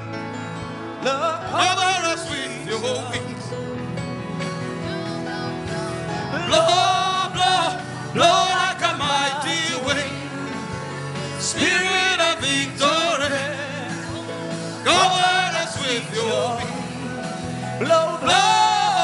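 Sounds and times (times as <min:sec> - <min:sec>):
sustained keyboard chords: 0:00.0 - 0:19.0
person singing: 0:01.0 - 0:03.6, 0:04.7 - 0:19.0.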